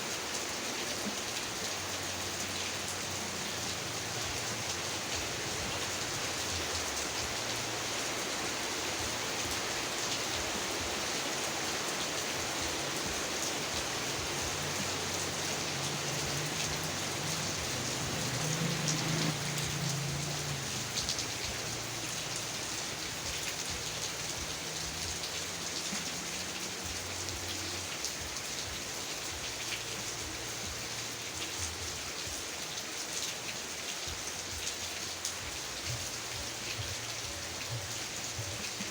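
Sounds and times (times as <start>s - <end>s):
heavy rain hiss: 0.0s - 38.9s.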